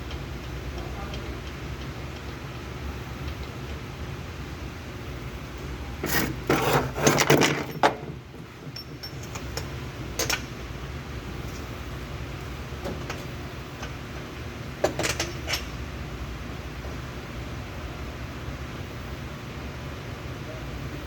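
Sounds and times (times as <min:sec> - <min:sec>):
metal clinking and rattling: 0:06.5 - 0:10.6.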